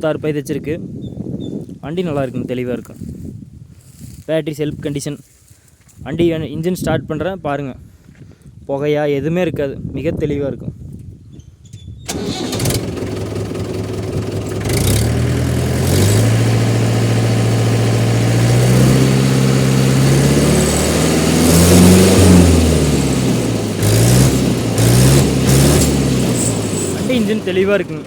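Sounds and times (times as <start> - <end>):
tractor diesel engine revving: 12.1 - 28.0
tractor engine starter cranking: 12.1 - 28.0.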